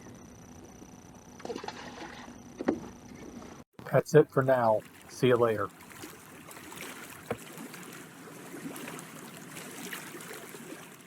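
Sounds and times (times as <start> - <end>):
water lapping against boat hull: 1.4 - 11.0.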